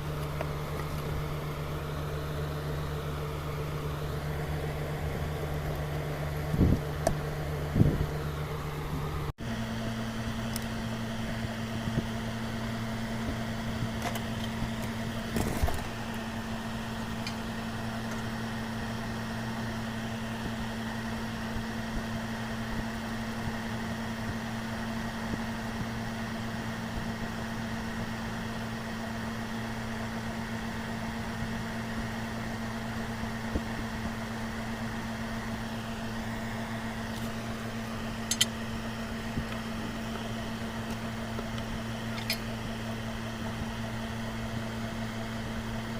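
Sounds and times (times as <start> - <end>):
transformer humming: 0.0 - 19.8
sharp clicks: 38.3 - 38.6.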